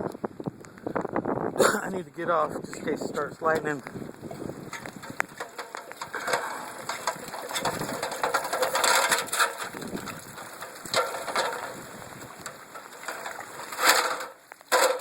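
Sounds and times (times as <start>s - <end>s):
phone handling crackling and scraping: 3.5s - 15.0s.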